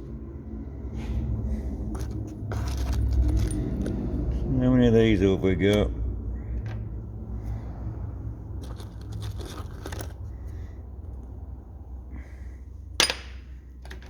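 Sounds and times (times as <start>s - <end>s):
low hum: 0.0s - 14.0s
metal parts clinking in box: 2.0s - 4.0s, 8.6s - 10.2s.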